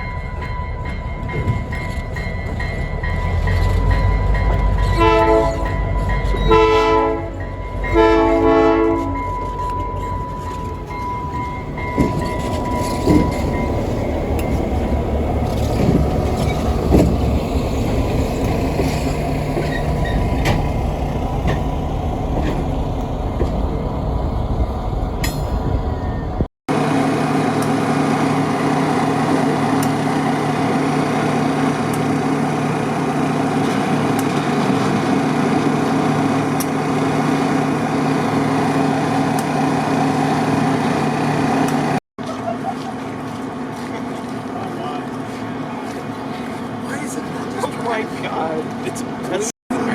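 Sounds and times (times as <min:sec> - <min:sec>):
train rumbling past: 0:00.0 - 0:42.0
diesel engine drone: 0:02.1 - 0:42.0
clanks from wheels: 0:08.9 - 0:23.7.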